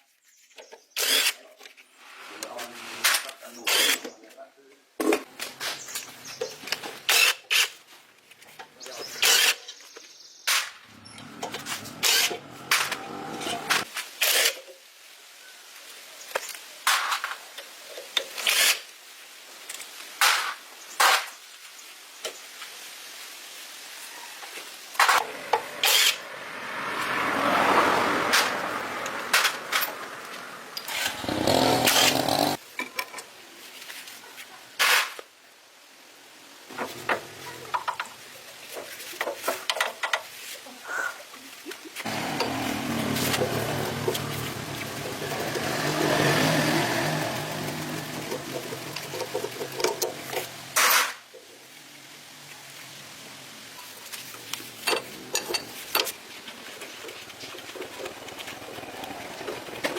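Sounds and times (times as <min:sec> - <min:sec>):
power tool bursts: 0:11.5 - 0:13.0, 0:25.8 - 0:26.2, 0:30.9 - 0:32.6
tool clicks and metal knocks: 0:48.3 - 0:51.1.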